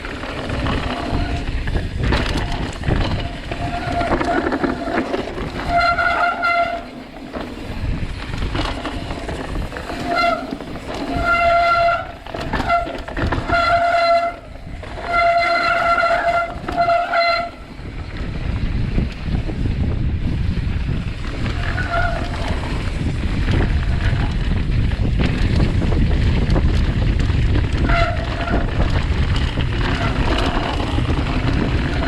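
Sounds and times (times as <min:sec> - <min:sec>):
brakes squealing: 0:00.0 - 0:18.0, 0:21.4 - 0:24.2
tyre and wind rumble: 0:00.0 - 0:32.0.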